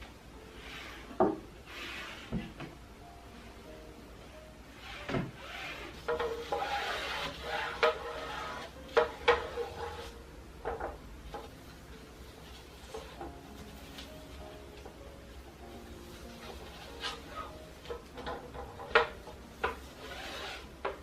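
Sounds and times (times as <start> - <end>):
rubbing and scrubbing: 5.4 - 10.2.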